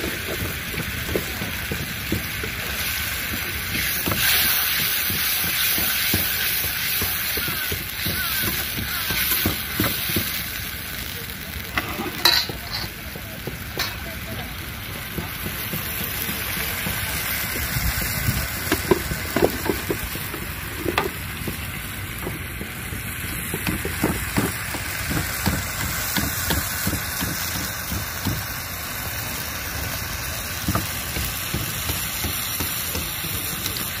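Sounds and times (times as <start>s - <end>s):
curry frying and sizzling: 0.0s - 34.0s
spoon knocking and scraping pot: 11.8s - 12.9s.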